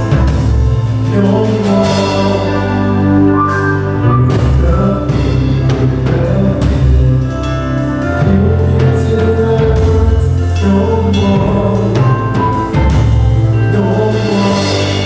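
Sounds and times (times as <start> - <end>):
live band playing worship song: 0.0 - 15.0.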